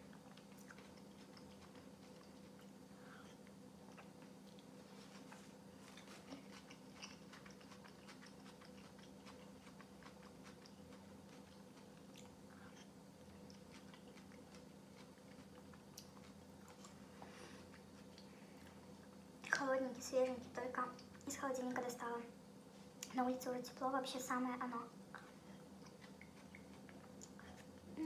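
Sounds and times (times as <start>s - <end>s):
person chewing soup: 0.0s - 18.9s, 25.2s - 27.8s
faint steady hum: 0.0s - 28.0s.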